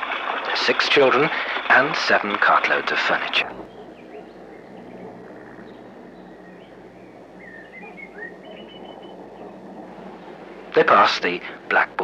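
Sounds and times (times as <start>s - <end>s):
background hiss and hum: 0.0s - 12.0s
faint birdsong: 3.4s - 12.0s.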